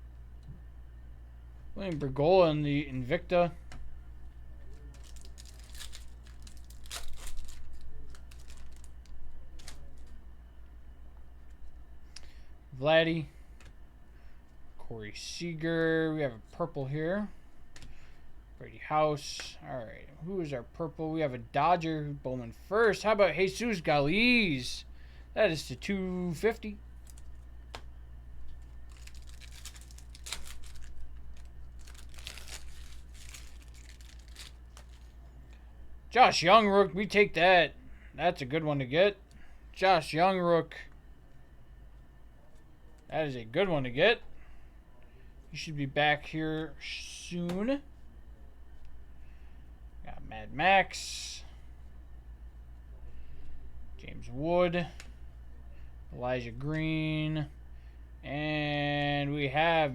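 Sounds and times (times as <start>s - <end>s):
low steady hum: 0.0s - 59.9s
cards rustling and clicking: 4.7s - 10.2s, 27.0s - 35.2s
foil wrapper crinkling and tearing: 4.8s - 10.1s, 27.0s - 27.4s, 28.6s - 35.2s.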